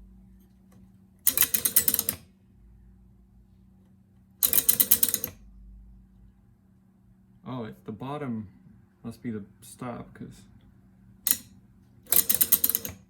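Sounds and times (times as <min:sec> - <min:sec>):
faint steady hum: 0:00.0 - 0:13.0
relays clattering clicks: 0:01.3 - 0:02.2, 0:11.3 - 0:11.5, 0:12.1 - 0:13.0.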